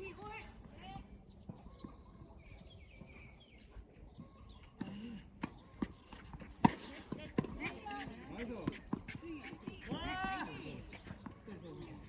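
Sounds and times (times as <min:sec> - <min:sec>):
tennis ball bouncing on hard court: 0:04.8 - 0:10.2.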